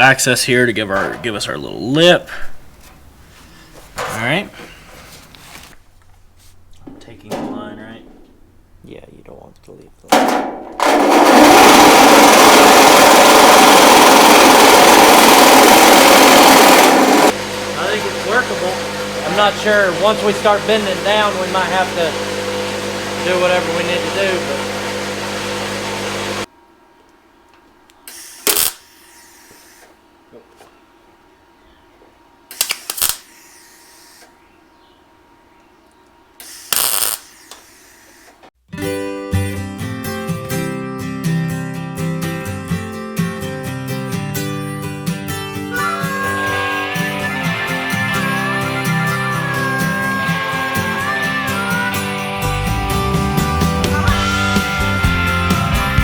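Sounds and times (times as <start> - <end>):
power tool cutting sheet steel: 10.8 - 26.5, 28.1 - 29.9, 32.6 - 34.3, 36.4 - 38.4.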